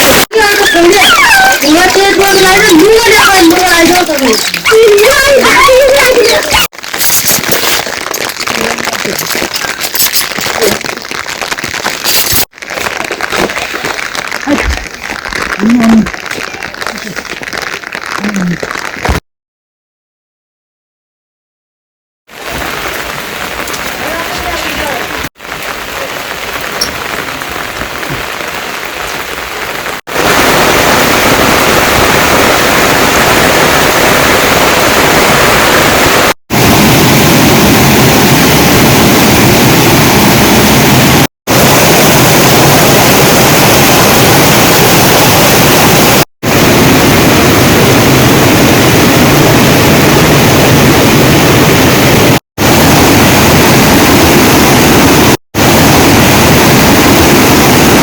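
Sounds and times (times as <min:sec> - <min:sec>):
heavy rain pouring: 0:00.0 - 0:19.2, 0:22.3 - 0:58.0.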